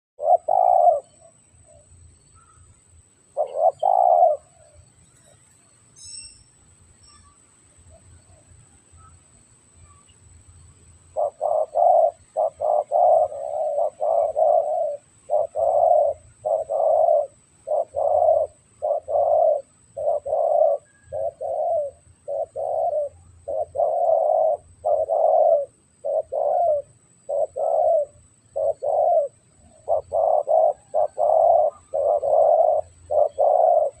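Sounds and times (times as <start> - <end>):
dove cooing: 0.2 - 2.6, 3.3 - 4.8, 11.1 - 34.0.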